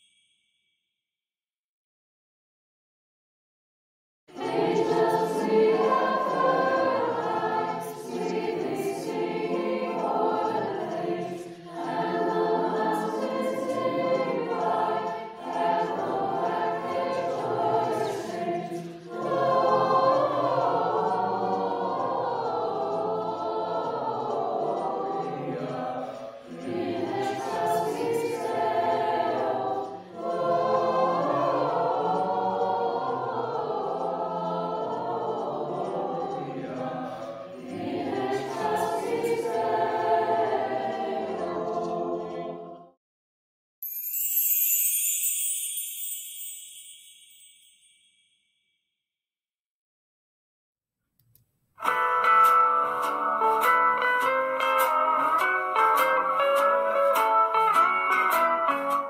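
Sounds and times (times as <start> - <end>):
choir singing a carol: 4.3 - 43.0, 52.0 - 59.0.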